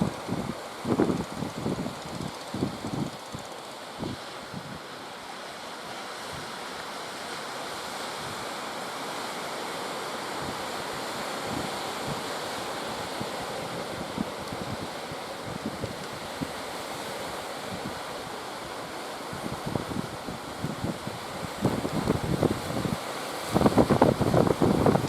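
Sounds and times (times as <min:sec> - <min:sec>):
wind buffeting microphone: 0:00.0 - 0:04.8, 0:19.4 - 0:25.0
sea surf washing: 0:00.0 - 0:25.0.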